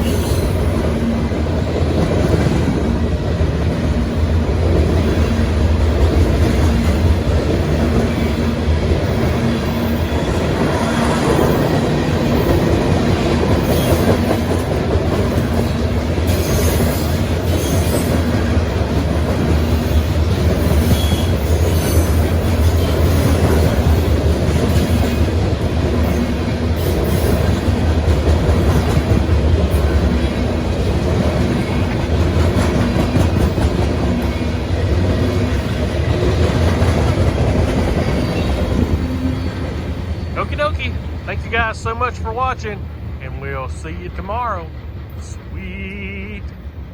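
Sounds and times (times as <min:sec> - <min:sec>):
freight train cars rolling: 0:00.0 - 0:46.8
wheel squeals: 0:20.8 - 0:22.2.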